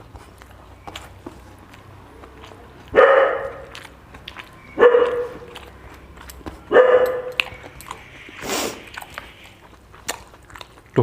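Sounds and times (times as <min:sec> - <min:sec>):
dog barking: 0:02.4 - 0:05.7, 0:06.4 - 0:07.8.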